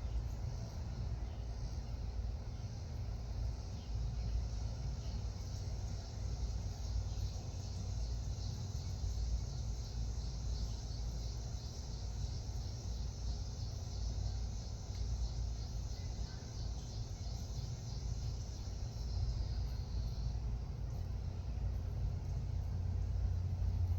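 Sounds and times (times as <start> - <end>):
crickets chirring: 0.0 - 23.9.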